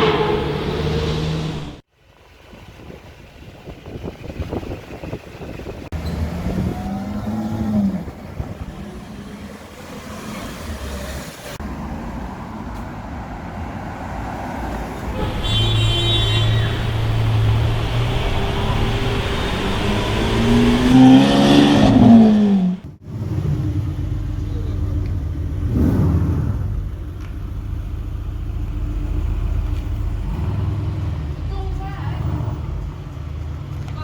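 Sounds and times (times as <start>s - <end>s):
steady engine note: 0.0s - 1.8s, 15.1s - 33.2s
street traffic: 0.0s - 34.0s
supercar engine revving: 5.7s - 11.6s, 14.1s - 34.0s.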